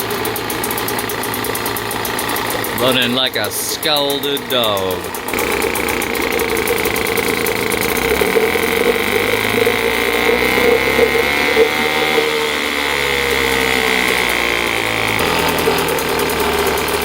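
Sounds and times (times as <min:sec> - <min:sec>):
outboard motor running: 0:00.0 - 0:17.0
steady high tone: 0:02.6 - 0:16.1.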